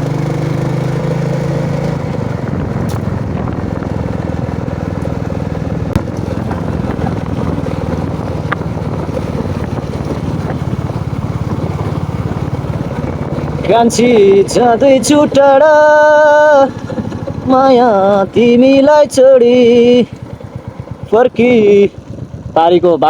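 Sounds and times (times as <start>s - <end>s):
motorcycle engine running: 0.0s - 23.0s
wind on microphone: 2.1s - 15.5s
sharp click: 2.8s - 3.1s.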